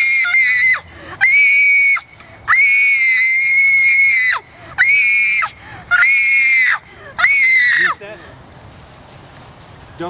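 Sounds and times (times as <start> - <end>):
woman screaming: 0.0 - 8.0.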